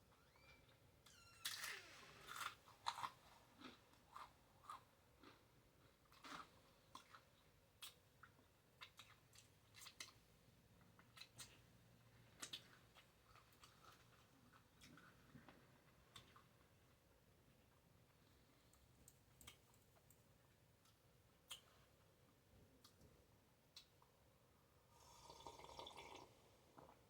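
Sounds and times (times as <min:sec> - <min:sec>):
close-up chewing: 0:02.3 - 0:10.2, 0:12.4 - 0:16.7.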